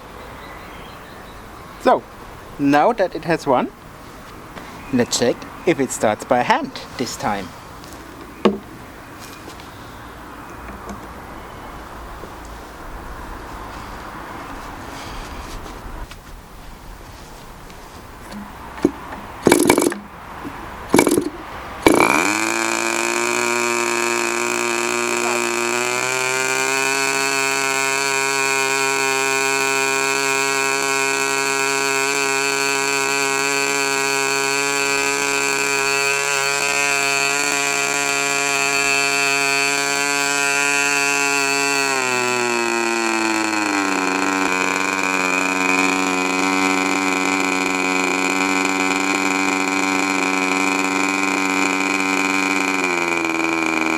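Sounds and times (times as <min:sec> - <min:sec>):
model engine popping: 0:08.2 - 0:08.7, 0:18.3 - 0:53.9
model engine running at high speed: 0:18.8 - 0:20.1, 0:20.9 - 0:53.9.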